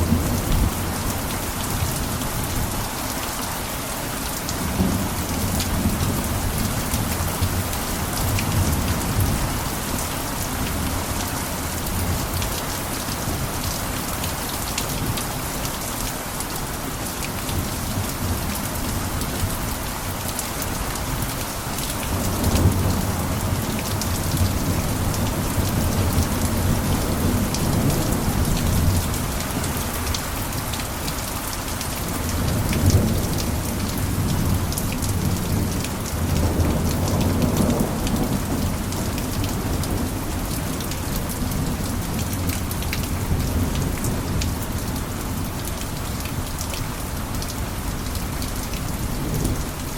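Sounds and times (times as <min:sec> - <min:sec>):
rain pattering on a roof: 0:00.0 - 0:49.9.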